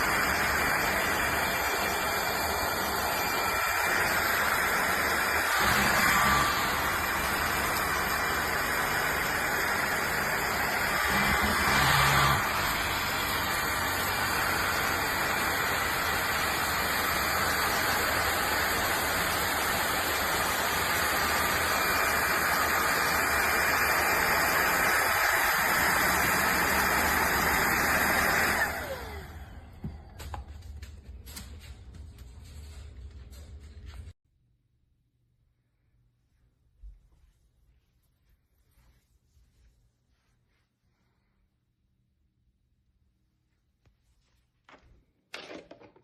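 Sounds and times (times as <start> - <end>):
motor winding down whine: 0.0 - 30.4
vacuum cleaner running: 0.0 - 34.1.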